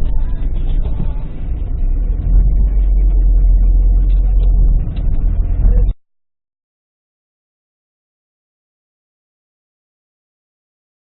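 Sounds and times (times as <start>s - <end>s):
car engine and road noise: 0.0s - 6.0s.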